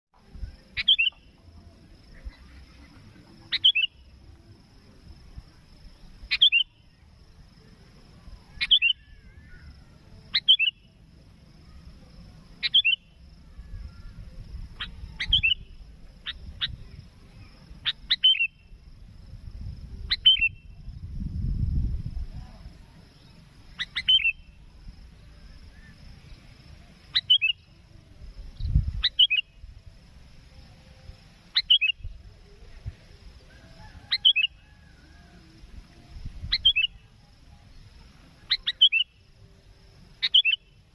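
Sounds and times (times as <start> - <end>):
faint high whine: 0.2 - 40.9
low rumble: 18.7 - 23.8.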